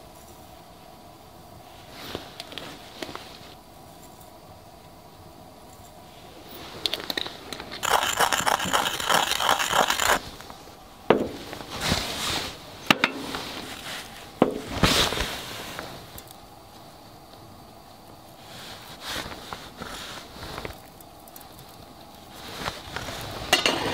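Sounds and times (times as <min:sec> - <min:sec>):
rasping scrape: 0:07.8 - 0:10.2.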